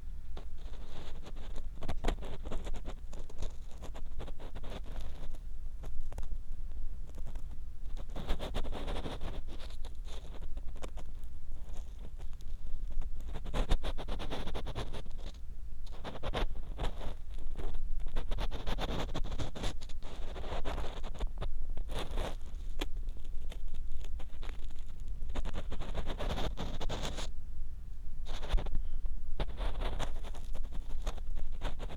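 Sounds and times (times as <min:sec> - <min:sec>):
ear pick scraping microphone: 0:07.1 - 0:27.3, 0:28.2 - 0:31.9.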